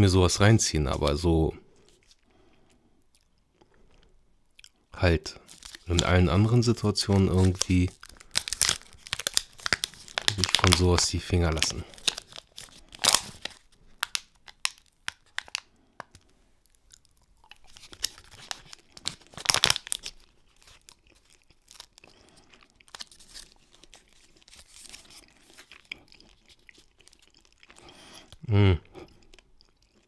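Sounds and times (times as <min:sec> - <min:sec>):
close chewing: 0:05.4 - 0:06.1, 0:11.8 - 0:30.0
wrapper tearing: 0:05.4 - 0:16.2, 0:17.6 - 0:22.0, 0:22.8 - 0:27.5
wrapper crinkling: 0:05.4 - 0:16.3, 0:17.5 - 0:27.6.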